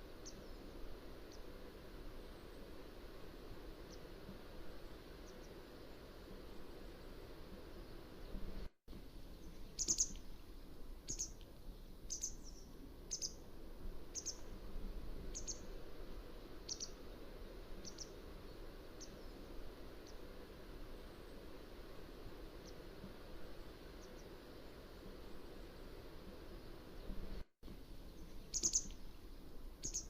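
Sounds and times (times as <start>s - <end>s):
bird chirping: 9.3s - 10.3s, 11.1s - 11.4s, 12.1s - 13.4s, 14.1s - 14.5s, 15.3s - 15.7s, 16.6s - 17.0s, 17.8s - 18.2s, 28.1s - 29.1s, 29.8s - 30.0s.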